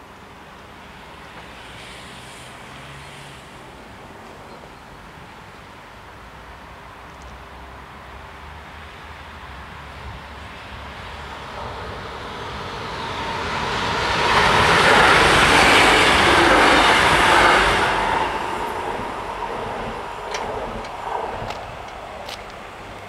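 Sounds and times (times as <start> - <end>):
train wheels rushing on rails: 0.0 - 4.8, 10.0 - 23.0.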